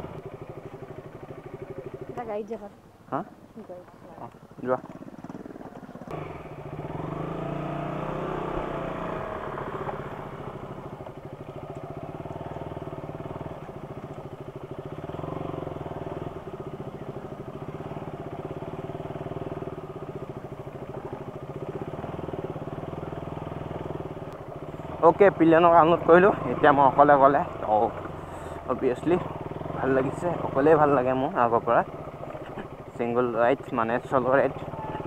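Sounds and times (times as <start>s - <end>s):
motorcycle engine accelerating: 0.0s - 3.3s, 4.6s - 35.0s.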